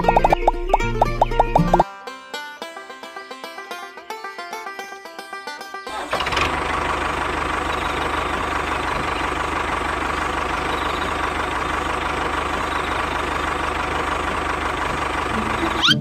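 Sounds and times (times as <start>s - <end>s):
engine idling: 0.0s - 1.8s, 5.9s - 16.0s
banjo music: 0.0s - 16.0s.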